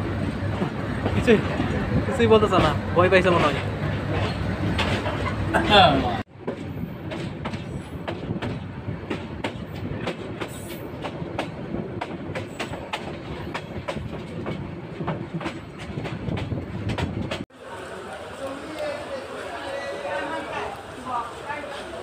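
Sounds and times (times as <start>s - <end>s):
train rumble: 0.0s - 22.0s
train wheels clicking over rail joints: 2.4s - 5.6s, 6.4s - 17.4s.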